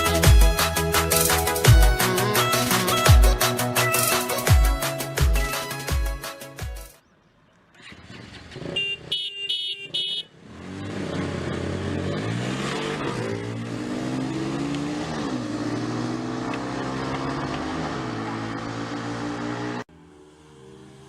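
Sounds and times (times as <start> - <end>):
motorcycle engine revving: 7.8 - 21.0.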